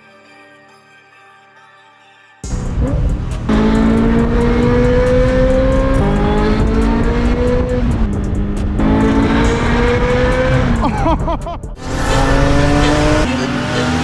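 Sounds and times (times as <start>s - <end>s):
sports car engine accelerating: 2.5s - 10.9s, 11.8s - 14.0s.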